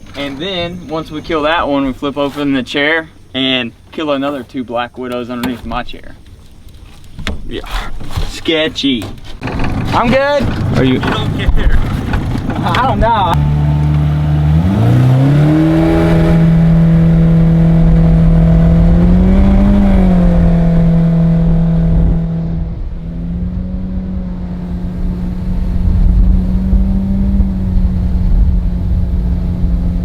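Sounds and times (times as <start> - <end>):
jet boat engine revving: 9.4 - 30.0.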